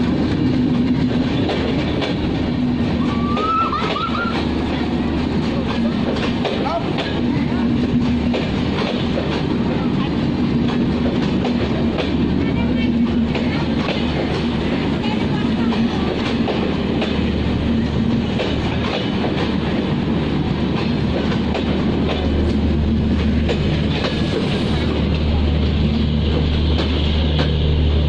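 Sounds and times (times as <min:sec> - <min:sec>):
train wheels clacking over rail joints: 0:00.0 - 0:28.0.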